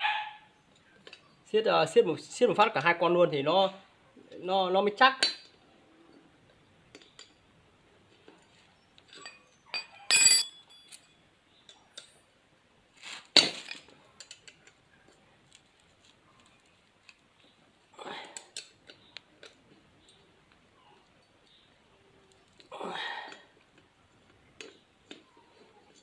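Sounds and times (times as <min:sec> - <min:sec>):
metal tools clinking on bolts: 0:09.1 - 0:12.2
loud ringing metal clink: 0:09.2 - 0:11.2.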